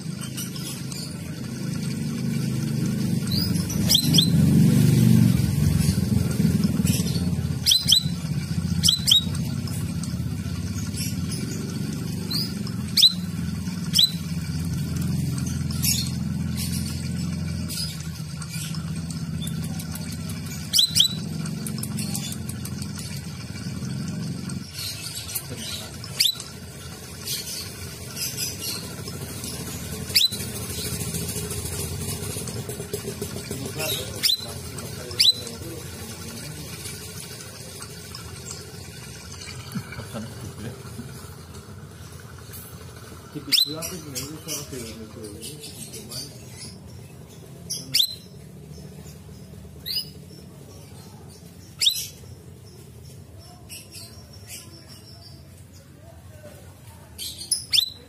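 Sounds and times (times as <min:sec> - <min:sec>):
bird chirping: 0:00.0 - 0:56.2, 0:57.1 - 0:58.0
bird upslurred chirps: 0:02.8 - 0:04.5, 0:05.8 - 0:09.8, 0:10.8 - 0:22.5, 0:24.5 - 0:31.0, 0:33.6 - 0:37.0, 0:57.2 - 0:58.0.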